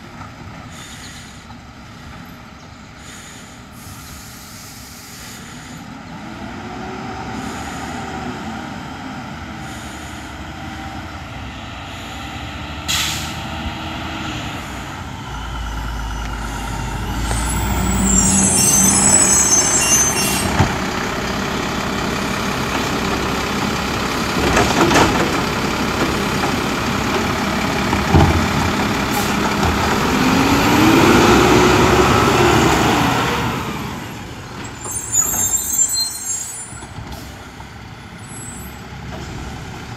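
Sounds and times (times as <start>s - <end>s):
air brakes hissing: 0.7s - 1.5s, 3.0s - 5.9s, 7.3s - 8.2s, 11.8s - 13.6s, 15.7s - 20.6s, 29.1s - 29.4s, 34.6s - 37.5s
diesel engine revving: 2.8s - 39.9s.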